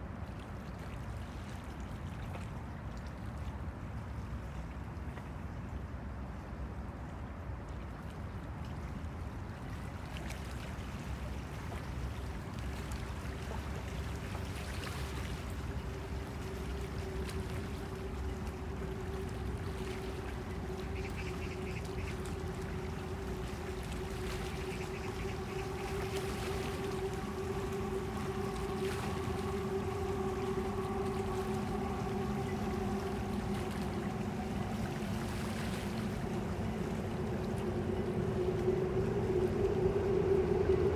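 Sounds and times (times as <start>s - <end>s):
river water lapping: 9.5s - 40.9s
low steady rumble: 13.5s - 40.9s
engine hum: 15.2s - 40.9s.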